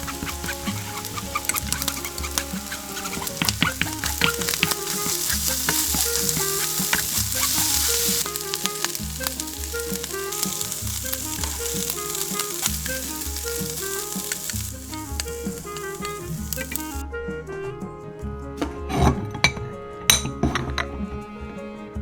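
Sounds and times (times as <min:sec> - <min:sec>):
rice sizzling in a hot pan: 0:00.0 - 0:17.0
utensil scraping a pan: 0:00.0 - 0:17.0, 0:18.6 - 0:21.0.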